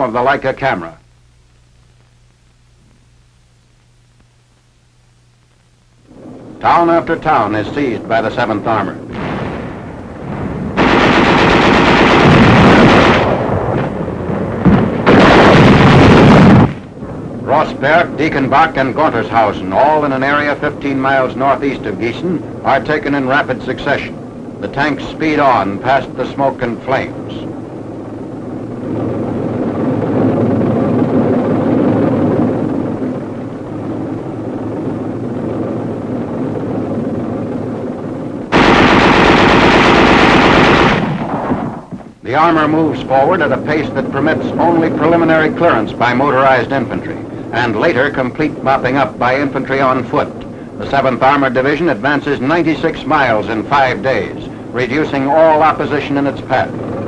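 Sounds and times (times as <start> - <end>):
rumble of tanks moving: 6.1 - 57.0
machine-gun fire: 9.1 - 16.9, 38.5 - 42.1.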